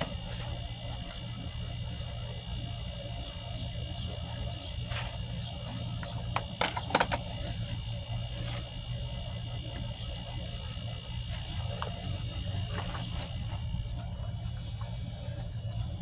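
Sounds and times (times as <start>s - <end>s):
steady low hum: 0.0s - 16.0s
sharp clicks and knocks: 6.0s - 7.5s.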